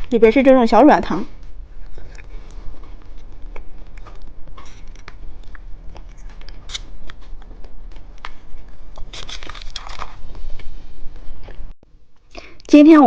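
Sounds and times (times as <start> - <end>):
plastic wrappers crinkling: 1.8 - 10.6.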